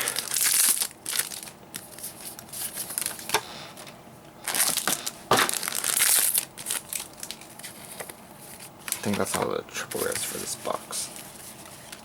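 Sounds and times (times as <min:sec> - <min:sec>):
foil wrappers crinkling: 0:00.0 - 0:03.4, 0:04.4 - 0:09.3.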